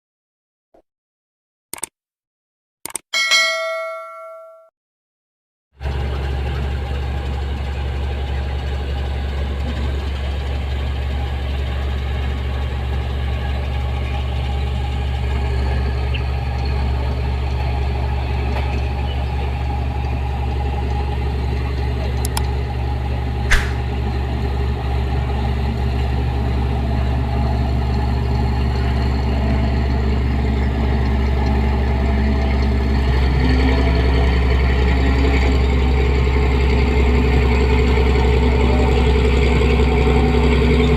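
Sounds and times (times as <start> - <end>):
sharp click: 1.7 - 1.9, 2.8 - 3.1, 23.5 - 23.9.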